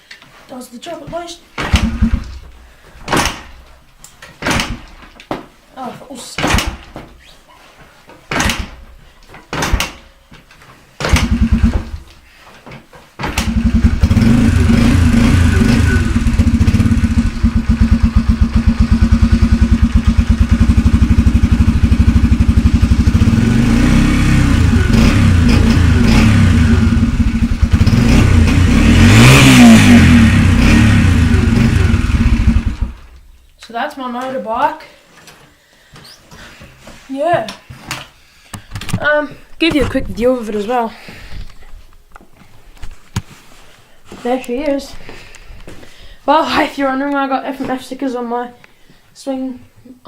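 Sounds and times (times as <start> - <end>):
motorbike engine revving: 1.7 - 2.4, 11.1 - 12.0, 13.3 - 33.2.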